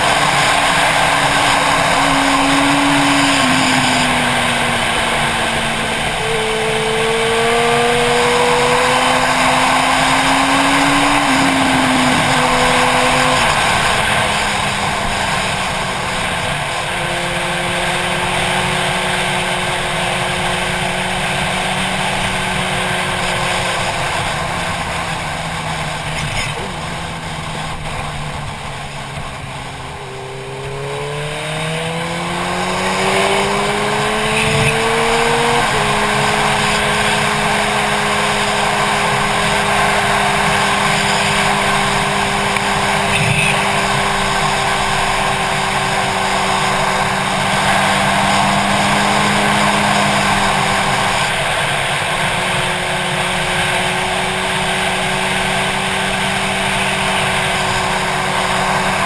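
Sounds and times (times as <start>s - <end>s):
wind rushing past: 0.0s - 15.7s
motorcycle engine: 0.0s - 59.0s.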